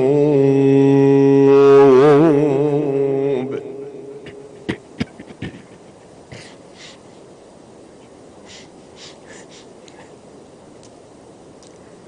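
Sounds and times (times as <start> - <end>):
hall background noise: 3.3 - 12.0
breathy hisses: 6.3 - 7.1, 8.4 - 10.2.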